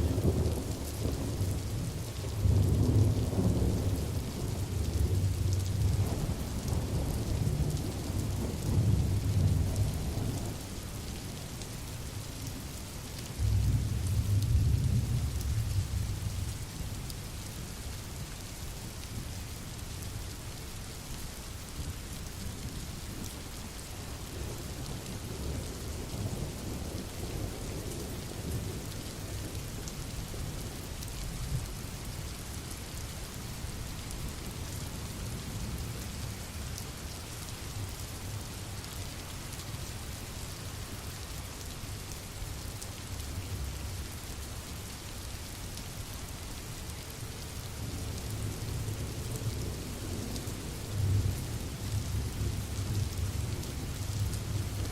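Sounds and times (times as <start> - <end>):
steady rain hissing: 0.0 - 54.9.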